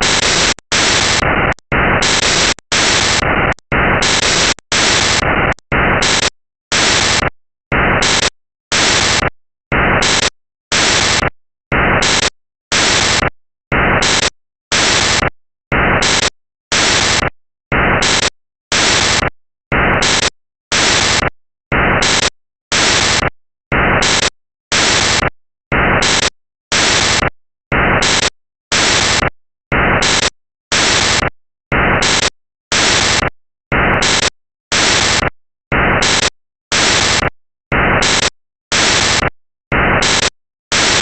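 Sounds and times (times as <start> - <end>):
bursts of static hiss: 0.0 - 7.3.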